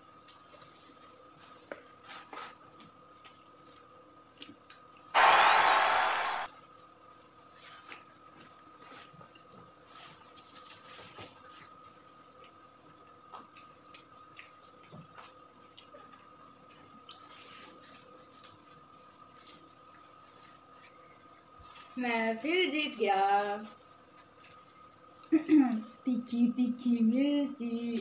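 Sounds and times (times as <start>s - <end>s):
people chewing: 0.2s - 5.1s, 7.2s - 22.0s.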